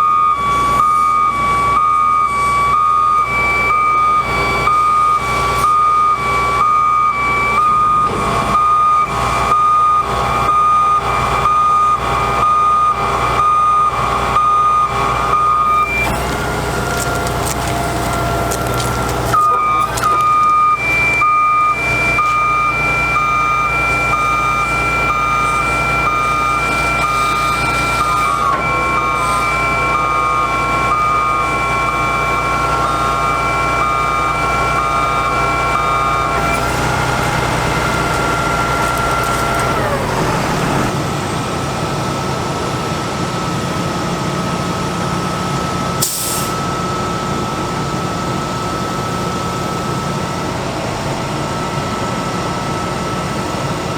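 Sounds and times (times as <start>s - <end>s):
truck warning beeper: 0.0s - 41.5s, 43.3s - 53.9s
diesel engine whining: 0.0s - 53.9s
short hiss: 46.0s - 46.5s.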